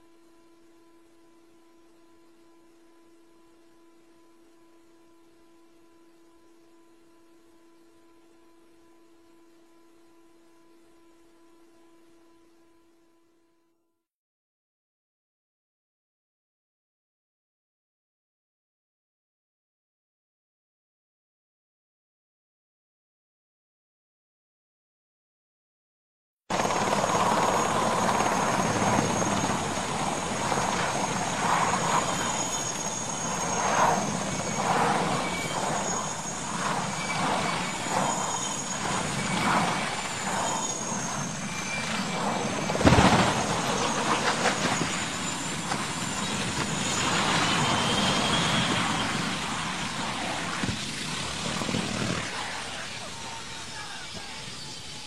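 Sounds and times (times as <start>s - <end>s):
aircraft engine with high whine: 0.0s - 13.6s, 26.5s - 55.0s.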